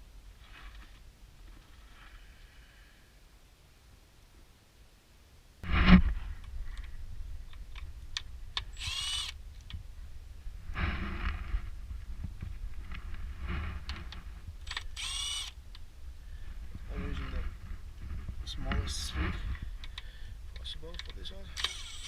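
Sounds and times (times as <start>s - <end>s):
power tool whirring: 8.7s - 9.4s, 14.6s - 15.6s, 21.5s - 22.0s.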